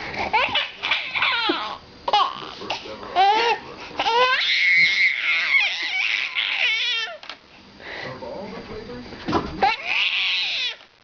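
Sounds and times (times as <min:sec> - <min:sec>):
baby laughing and squealing: 0:00.2 - 0:02.6, 0:03.2 - 0:07.2, 0:09.6 - 0:10.8.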